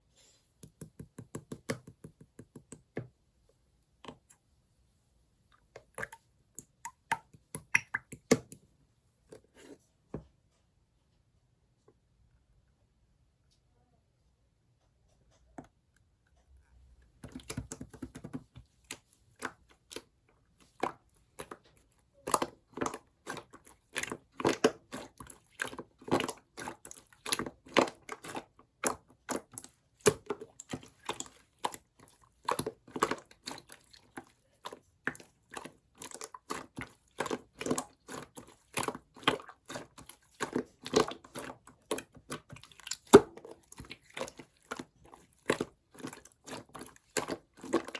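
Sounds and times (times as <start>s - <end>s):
slime squishing with sticky pops: 5.8s - 8.6s, 17.2s - 47.9s.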